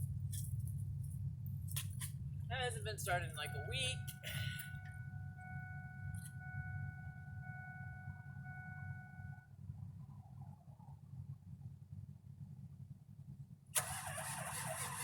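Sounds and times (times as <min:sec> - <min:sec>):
steady low rumble: 0:00.0 - 0:13.7
dashboard warning chime: 0:02.5 - 0:09.5.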